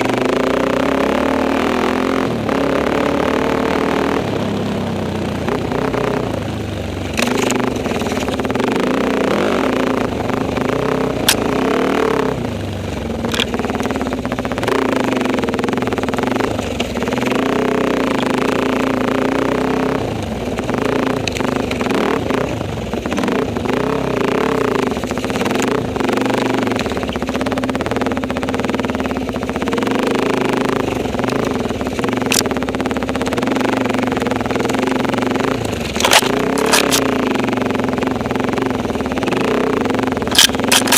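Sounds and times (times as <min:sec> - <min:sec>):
motorcycle engine revving: 0:00.0 - 0:40.9
sharp clicks and knocks: 0:07.1 - 0:08.6, 0:11.2 - 0:11.6, 0:13.2 - 0:14.0, 0:31.2 - 0:33.4, 0:35.5 - 0:37.2, 0:40.2 - 0:40.9.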